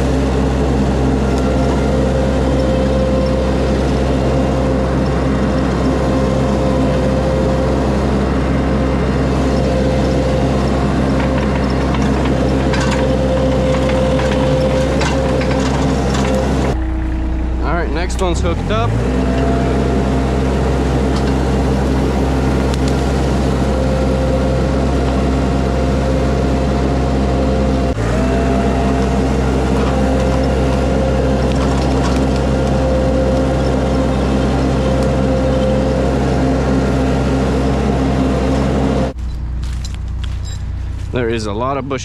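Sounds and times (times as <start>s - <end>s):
skid steer engine under load: 0.0s - 42.0s
steady machine whine: 0.0s - 42.0s.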